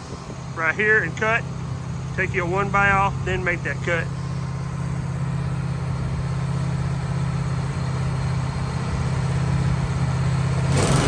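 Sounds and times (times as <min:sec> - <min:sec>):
sawmill engine humming: 0:00.0 - 0:11.0.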